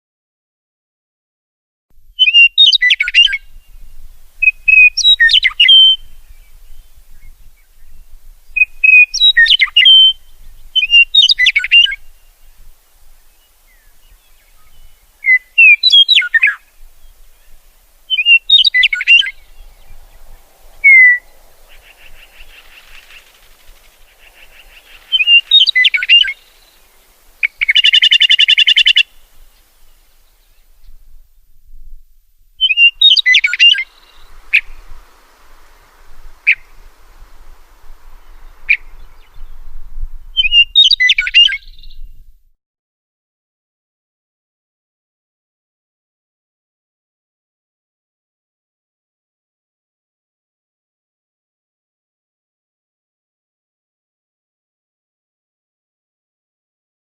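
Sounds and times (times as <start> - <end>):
songbirds chirping: 2.2 - 42.3.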